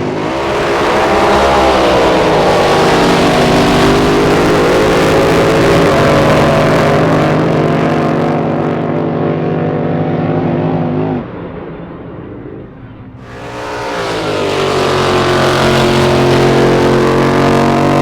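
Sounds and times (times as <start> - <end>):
loud racing boat engine: 0.0 - 18.0.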